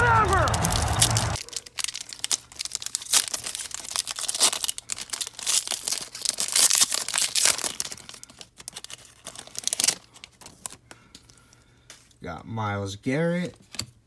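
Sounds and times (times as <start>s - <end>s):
plastic wrapper tearing and crinkling: 0.1s - 11.4s.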